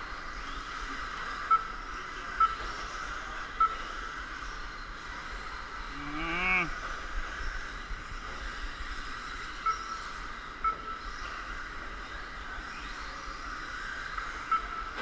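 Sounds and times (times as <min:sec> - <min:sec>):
person calling out: 0:06.0 - 0:06.8.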